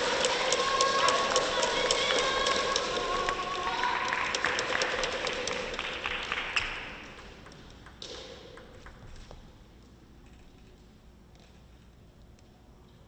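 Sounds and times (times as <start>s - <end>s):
crowd applauding and cheering: 0.0s - 7.4s.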